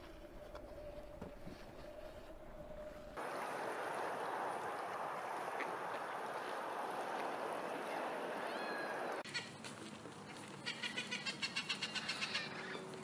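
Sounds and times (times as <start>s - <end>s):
waves lapping: 3.0s - 10.7s.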